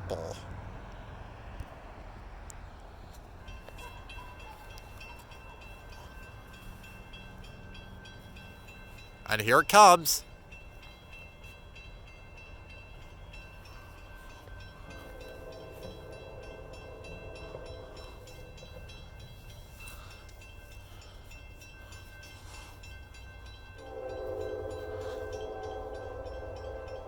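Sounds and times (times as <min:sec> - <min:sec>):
locomotive air horn: 0:23.8 - 0:27.0.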